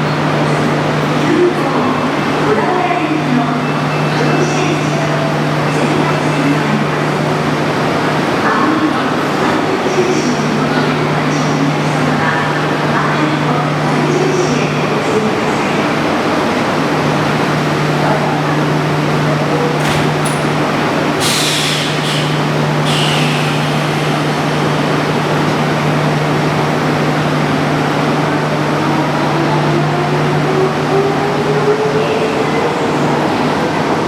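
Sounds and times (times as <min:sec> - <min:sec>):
electric train running hum: 0:00.0 - 0:34.0
air hisses: 0:21.2 - 0:25.0.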